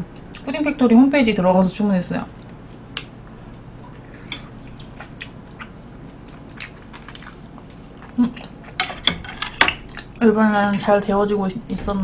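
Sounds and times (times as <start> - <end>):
person chewing rice cakes: 2.4 - 8.8.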